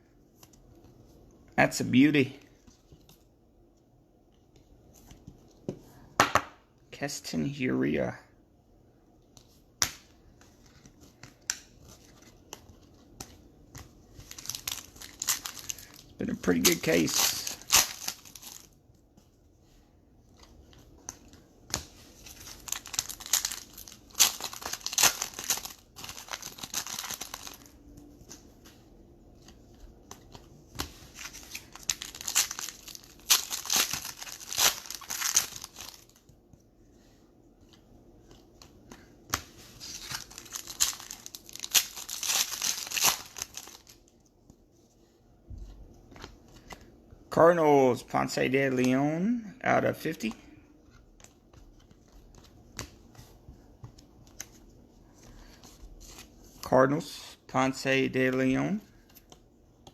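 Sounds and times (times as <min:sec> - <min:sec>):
foil packs tearing and crinkling: 0:22.4 - 0:27.6, 0:31.3 - 0:36.1, 0:39.9 - 0:44.0.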